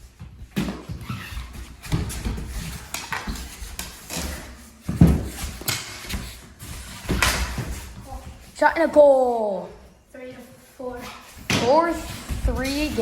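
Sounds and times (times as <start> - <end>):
hockey sticks clacking on ball: 1.8 - 8.0, 11.4 - 13.0.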